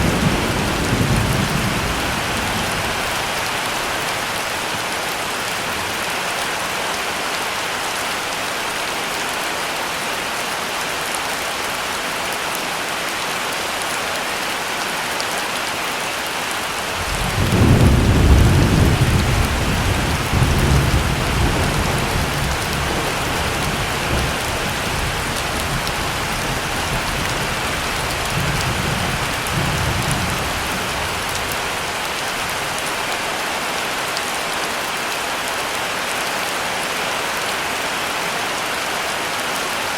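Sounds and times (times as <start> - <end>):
thunder rumbling: 0.0 - 4.3, 17.0 - 31.5
heavy rain falling: 0.0 - 39.9.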